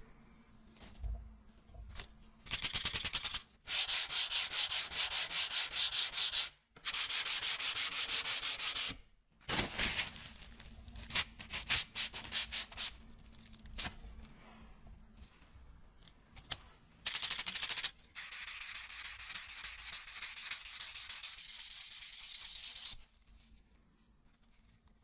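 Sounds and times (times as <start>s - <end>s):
hand sanding a blade: 2.6s - 9.0s, 17.1s - 23.0s.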